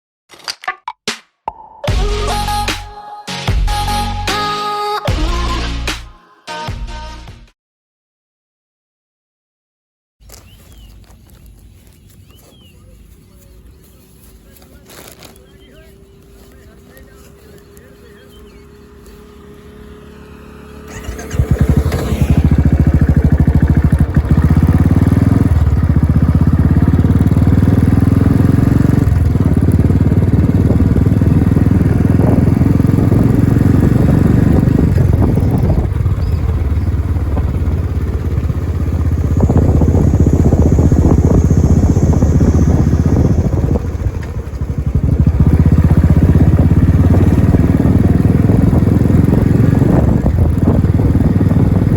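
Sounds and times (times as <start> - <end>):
motorcycle engine starting and thumping: 14.9 - 51.9.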